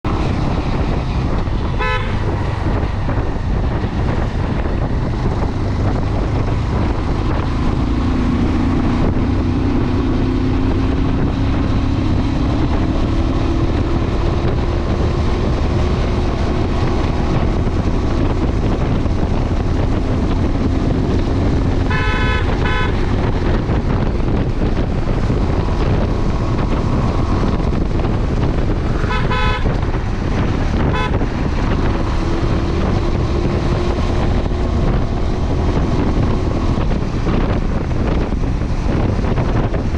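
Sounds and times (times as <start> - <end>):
motorcycle engine and road rumble: 0.0 - 39.9
wind on microphone: 0.0 - 39.9
vehicle horns honking: 1.6 - 2.6, 21.8 - 23.5, 29.0 - 30.0, 30.7 - 31.5.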